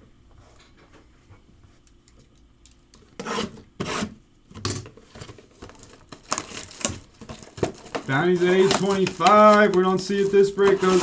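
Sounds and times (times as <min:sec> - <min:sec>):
cardboard and wrapper scraping: 0:05.0 - 0:11.0.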